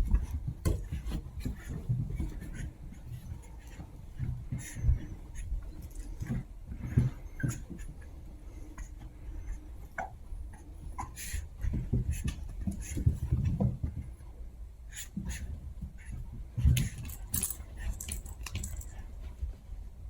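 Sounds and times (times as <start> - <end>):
puppies scuffling: 16.3 - 19.5.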